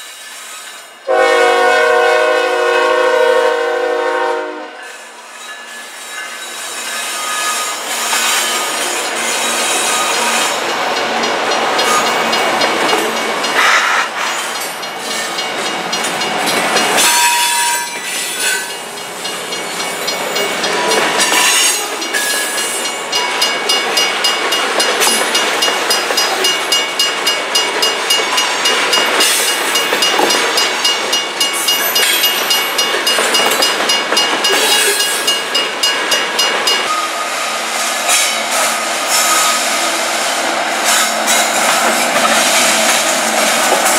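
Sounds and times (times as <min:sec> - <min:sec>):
freight train wheels rumbling: 0:00.0 - 0:43.9
wheels clacking over rail joints: 0:06.8 - 0:37.0, 0:40.3 - 0:43.9.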